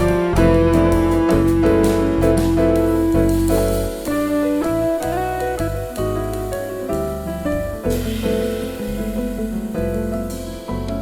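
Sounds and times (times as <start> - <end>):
held keyboard notes: 0.0 - 8.1
jazz bass line: 0.0 - 11.0.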